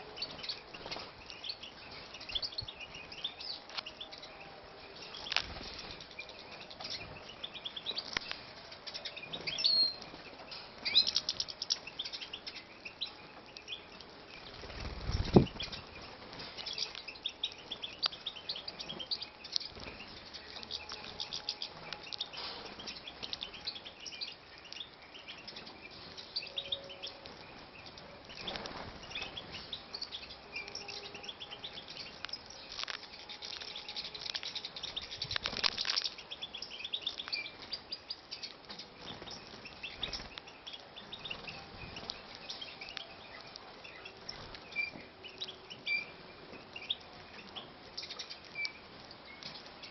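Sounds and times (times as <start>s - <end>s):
finches chirping: 0.0s - 49.9s
wing fluttering: 14.4s - 16.7s, 32.7s - 36.2s.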